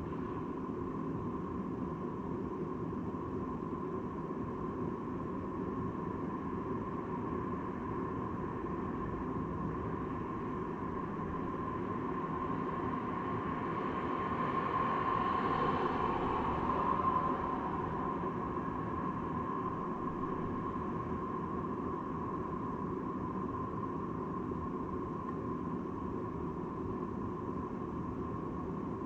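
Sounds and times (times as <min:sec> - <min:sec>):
steady hum: 0:00.0 - 0:29.0
road and wind noise: 0:09.0 - 0:22.8.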